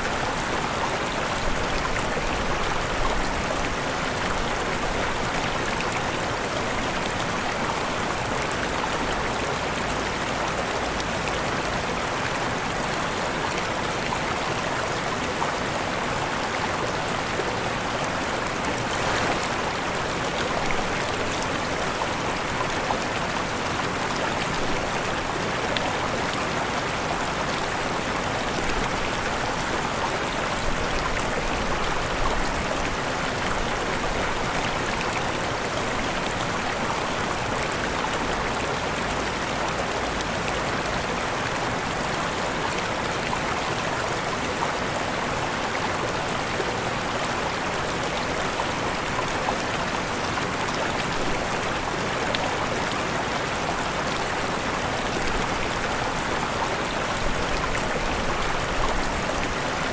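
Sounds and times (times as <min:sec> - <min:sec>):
waterfall rushing: 0:15.8 - 0:39.2, 0:40.0 - 0:59.9.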